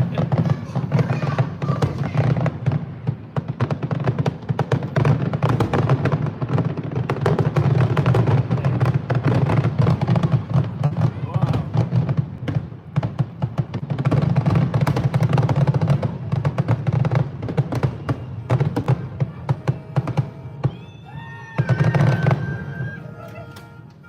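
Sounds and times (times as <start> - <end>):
fireworks popping and crackling: 0.0 - 24.0
falling whistle-like tones: 19.7 - 24.0.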